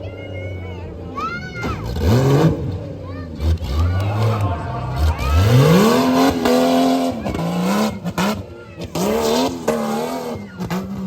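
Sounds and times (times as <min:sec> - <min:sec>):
truck engine revving hard: 0:01.6 - 0:11.0.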